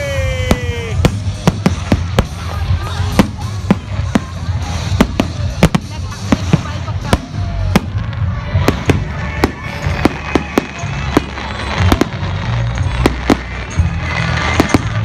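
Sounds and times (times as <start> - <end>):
fireworks banging: 0.0 - 15.0
fireworks crackling: 0.0 - 15.0.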